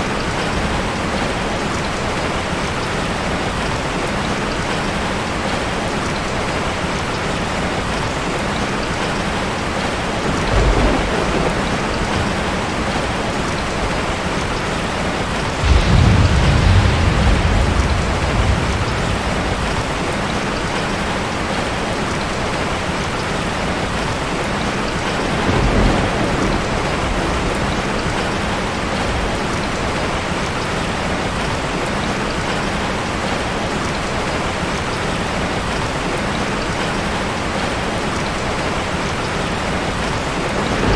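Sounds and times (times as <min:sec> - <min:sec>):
rushing water: 0:00.0 - 0:40.9
deep rumbles: 0:15.6 - 0:21.0.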